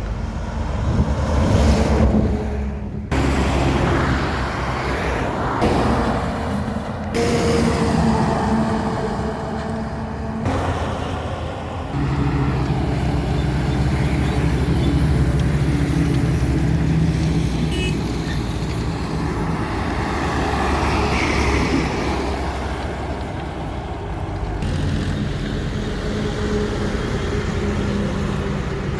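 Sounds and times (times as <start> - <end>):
road noise: 0.0 - 28.9
truck diesel engine running: 2.1 - 28.9.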